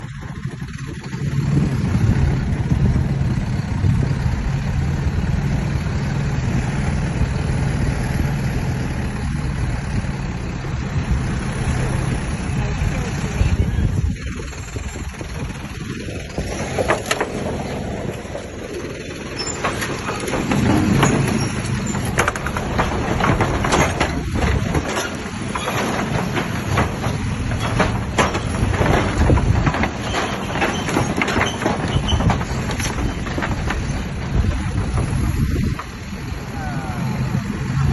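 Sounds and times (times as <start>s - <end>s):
truck engine and road rumble: 0.0s - 37.9s
wheels knocking on bridge deck: 15.1s - 36.2s.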